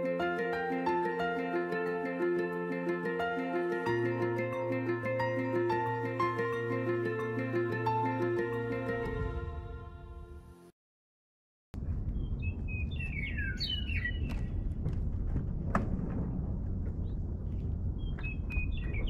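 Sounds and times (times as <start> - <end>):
music: 0.0 - 10.8
small birds chirping: 12.0 - 14.6, 17.0 - 19.0
low outdoor rumble: 14.3 - 19.0.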